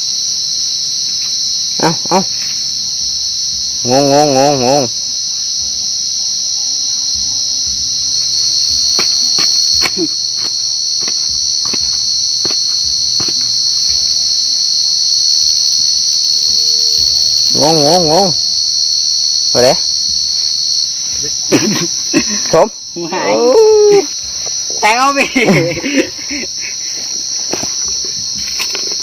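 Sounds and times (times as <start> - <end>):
cricket trilling: 0.0 - 29.0
sharp knocks: 8.9 - 13.6.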